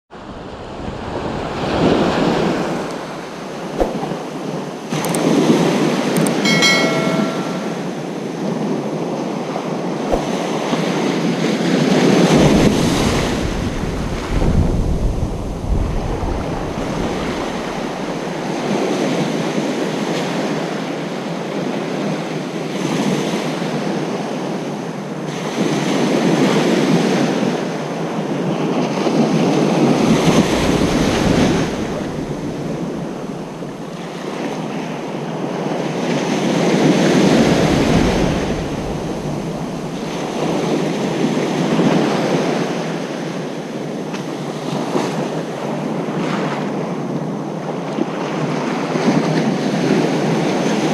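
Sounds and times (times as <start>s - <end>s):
deep rumble of surf: 0.1s - 7.9s, 11.9s - 19.8s, 29.5s - 50.9s
waves breaking on a beach: 0.2s - 50.9s.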